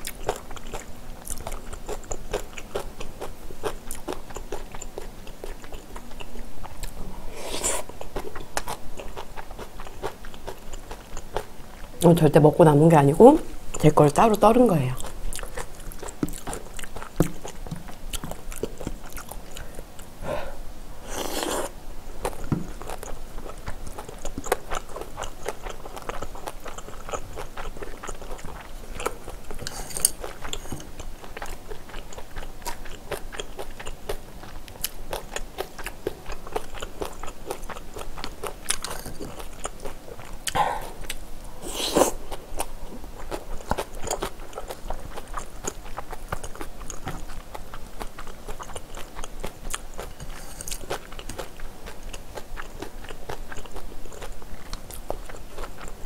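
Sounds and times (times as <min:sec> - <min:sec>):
person crunching food: 0:15.0 - 0:20.1, 0:21.0 - 0:56.0.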